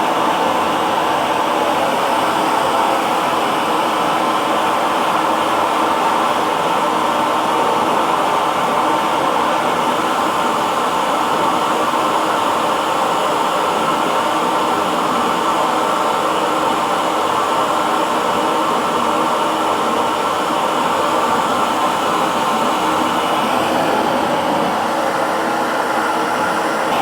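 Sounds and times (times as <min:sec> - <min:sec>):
hair dryer running: 0:19.7 - 0:27.0.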